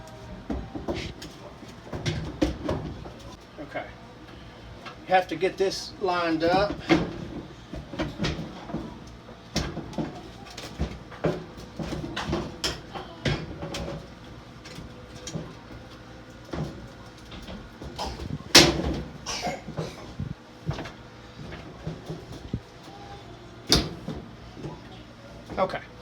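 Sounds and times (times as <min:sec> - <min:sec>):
metal clunks: 0:16.6 - 0:22.6.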